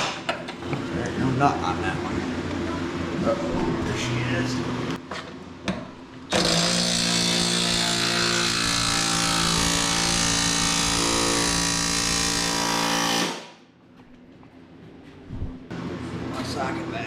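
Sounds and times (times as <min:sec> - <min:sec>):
motor running: 0:06.3 - 0:13.5.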